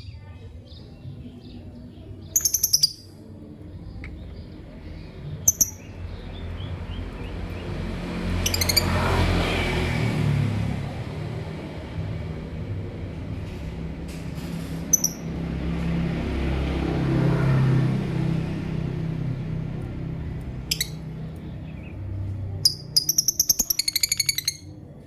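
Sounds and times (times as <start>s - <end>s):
low rumbling background noise: 0.0s - 8.9s
lovebird chirping: 0.8s - 3.2s, 3.8s - 7.7s, 8.4s - 9.1s, 14.9s - 15.3s, 20.6s - 24.8s.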